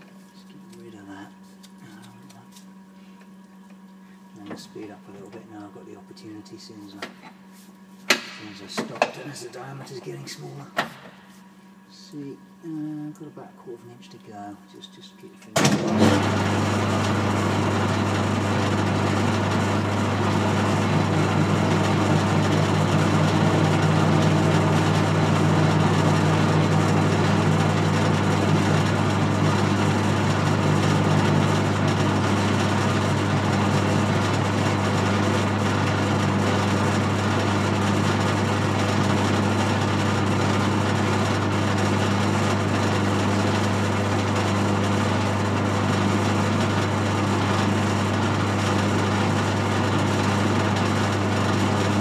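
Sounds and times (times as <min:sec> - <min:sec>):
metal lathe motor hum: 0:15.8 - 0:52.0.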